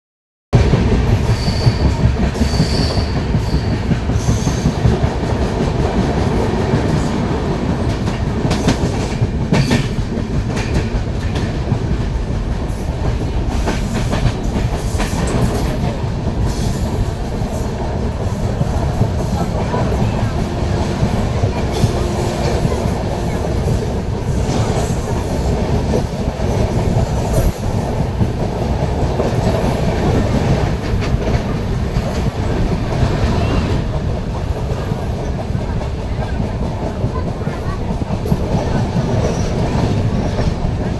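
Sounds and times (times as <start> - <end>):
train rumbling on rails: 0.6 - 40.9
train wheel squeals: 1.2 - 4.9.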